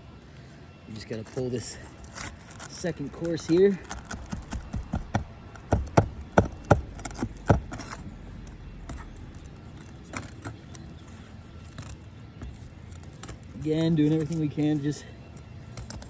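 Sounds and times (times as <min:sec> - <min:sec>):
tool clicking on shingle and nail: 0:02.6 - 0:08.0.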